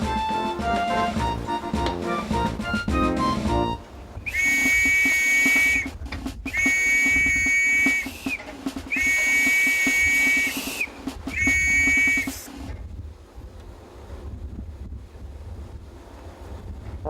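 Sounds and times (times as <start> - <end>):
low rhythmic chugging: 0.0 - 12.8
tugboat whistle blasts: 0.1 - 12.6.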